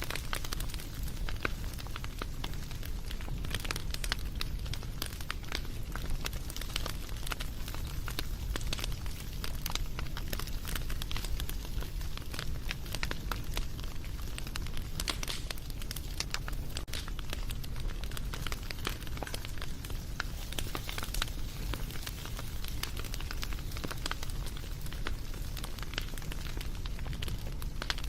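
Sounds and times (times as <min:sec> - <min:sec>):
low rumble of flames: 0:00.0 - 0:28.0
wood fire crackling: 0:00.0 - 0:28.0.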